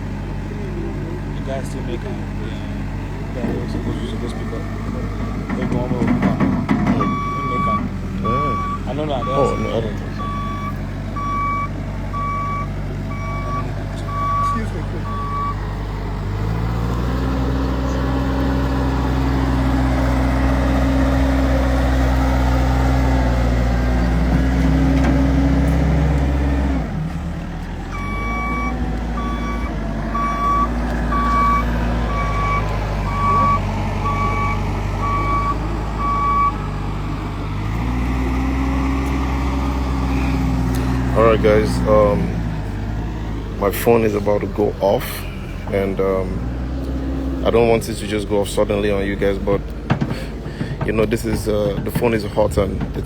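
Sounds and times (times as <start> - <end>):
large vehicle engine running: 0.0 - 53.0
reversing alarm beeping: 6.2 - 15.6, 27.9 - 36.6.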